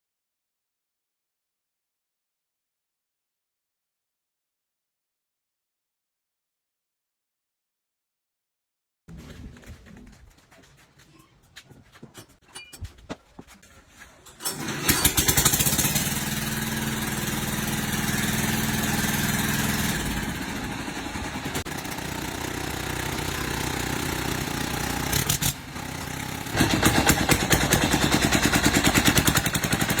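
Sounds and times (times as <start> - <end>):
engine running loudly: 14.8 - 30.0.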